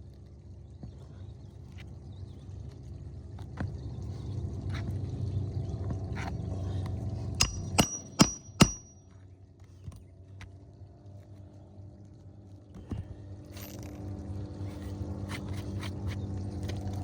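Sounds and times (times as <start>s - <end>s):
hammer striking nail: 7.4s - 9.0s.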